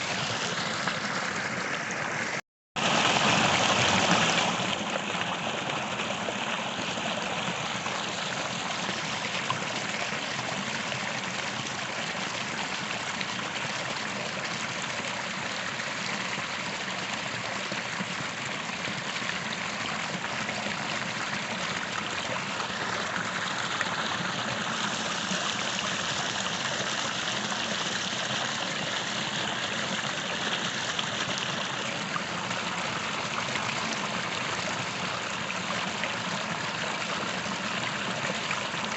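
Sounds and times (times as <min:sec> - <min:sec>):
creek water flowing: 0:00.0 - 0:38.9.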